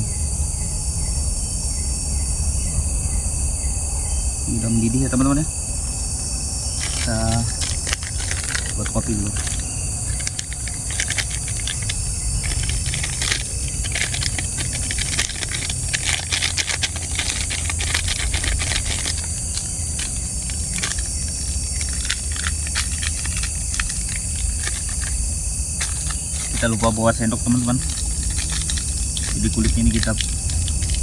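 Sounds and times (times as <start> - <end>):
night insects droning: 0.0 - 31.0
sachet crinkling and clicks: 6.8 - 31.0.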